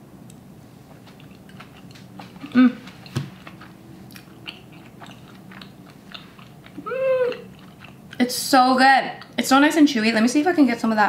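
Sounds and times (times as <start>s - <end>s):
person chewing: 0.8s - 8.3s
person humming: 2.4s - 2.9s, 6.8s - 7.5s.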